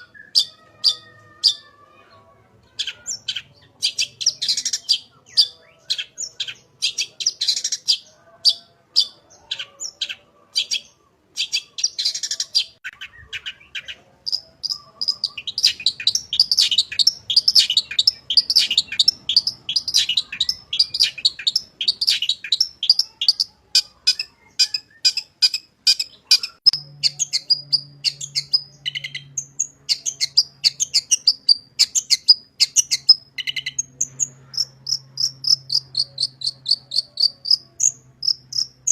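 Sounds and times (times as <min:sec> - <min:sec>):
bird singing sharp high chirps: 0:09.0 - 0:38.9.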